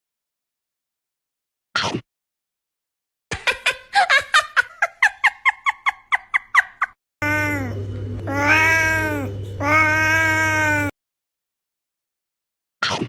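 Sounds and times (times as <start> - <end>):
cat long wavering meow: 7.2 - 10.9
low hum: 7.2 - 10.9.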